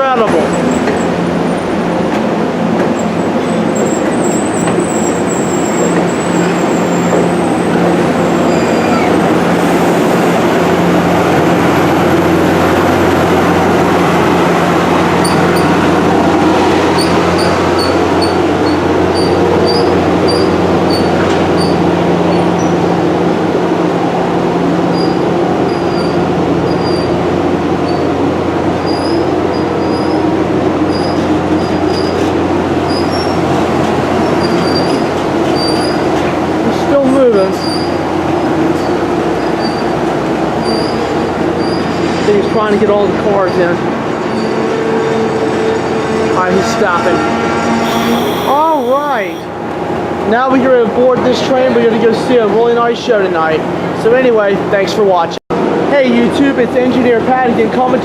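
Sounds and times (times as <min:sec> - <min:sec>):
passenger train rolling by: 0:00.0 - 0:48.4
diesel locomotive drone: 0:00.0 - 0:54.7
high-pitched wheel squeals: 0:03.0 - 0:10.1, 0:15.2 - 0:15.8, 0:16.9 - 0:22.8, 0:24.9 - 0:27.2, 0:28.8 - 0:30.2, 0:30.9 - 0:32.3, 0:47.8 - 0:49.6.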